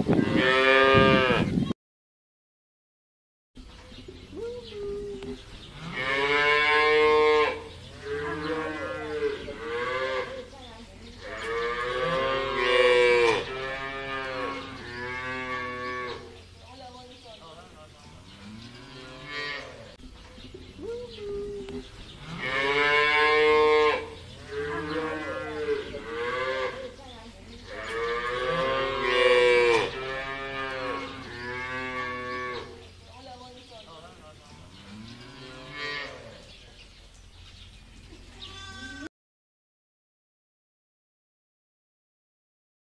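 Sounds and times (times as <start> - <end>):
cows mooing: 0.0 - 1.6, 5.7 - 10.5, 11.2 - 16.4, 18.4 - 20.0, 21.4 - 27.0, 27.7 - 32.8, 34.8 - 36.5.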